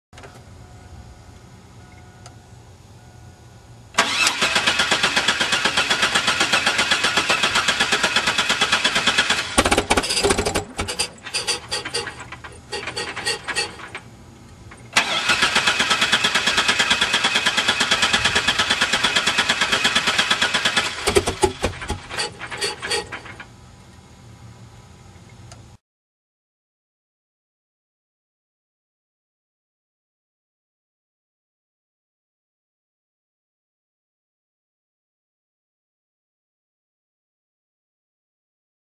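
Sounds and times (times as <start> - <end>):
engine starter cranking: 4.0 - 14.1, 14.7 - 23.5.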